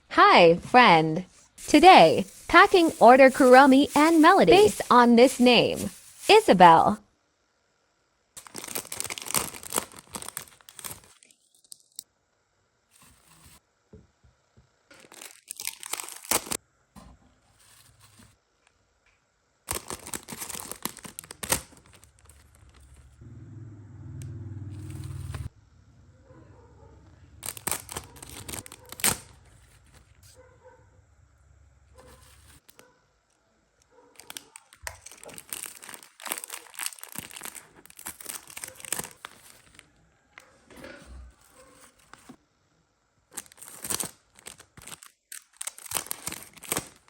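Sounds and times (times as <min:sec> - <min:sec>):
plastic packaging crinkling and tearing: 0:01.7 - 0:06.3, 0:08.4 - 0:12.0, 0:14.9 - 0:16.6, 0:19.7 - 0:23.2, 0:27.4 - 0:30.3, 0:34.2 - 0:39.8, 0:43.3 - 0:47.0
low hum: 0:22.6 - 0:28.3.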